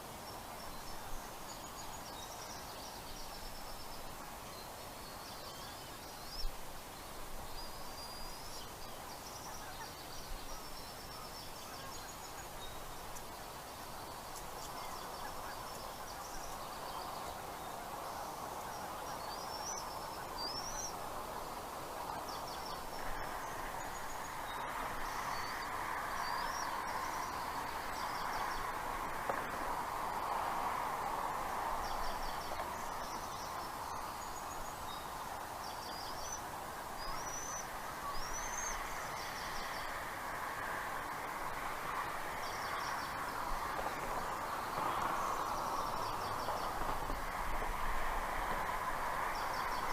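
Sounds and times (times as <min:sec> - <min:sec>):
steady rushing noise: 0:00.0 - 0:49.9
birds chirping: 0:00.4 - 0:30.3, 0:31.4 - 0:40.0.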